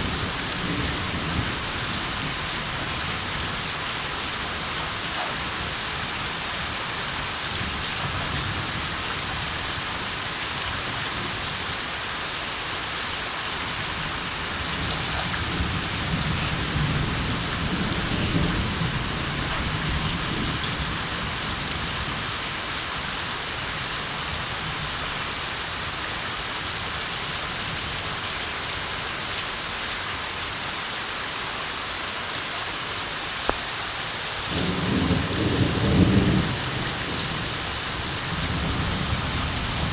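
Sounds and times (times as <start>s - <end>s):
heavy rain falling: 0.0s - 39.9s
distant thunder rumble: 34.4s - 39.9s.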